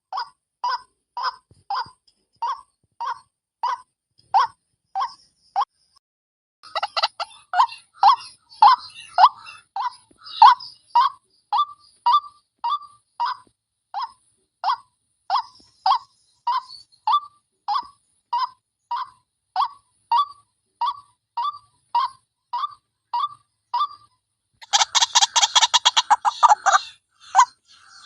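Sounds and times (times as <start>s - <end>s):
waterhen calling wak notes: 6.6s - 12.9s, 22.6s - 28.0s.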